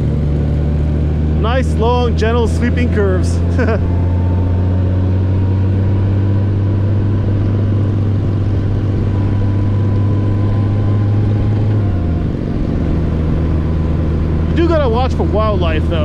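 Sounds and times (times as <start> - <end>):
motorcycle engine humming: 0.0 - 16.0.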